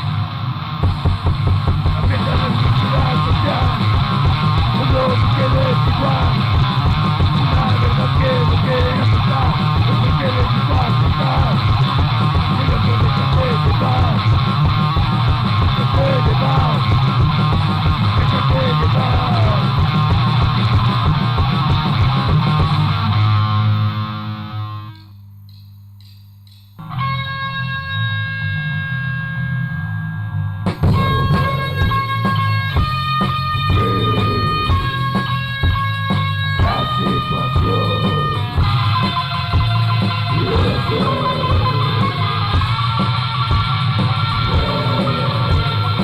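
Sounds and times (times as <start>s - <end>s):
punk rock band playing: 0.0s - 24.8s, 30.6s - 46.0s
held guitar tone: 26.8s - 46.0s.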